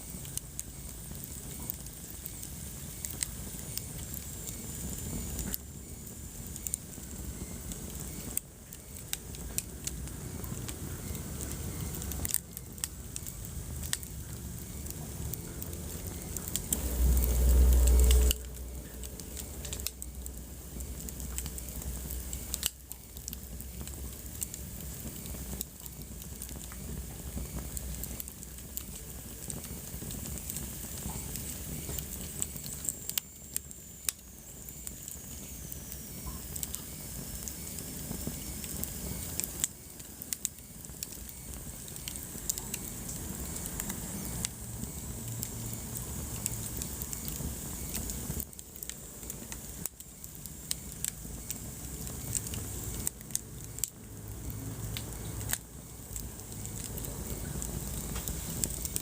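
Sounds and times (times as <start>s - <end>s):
wood fire crackling and popping: 0.0s - 59.0s
low rumble: 13.7s - 22.6s
faint high whistle: 16.1s - 20.2s.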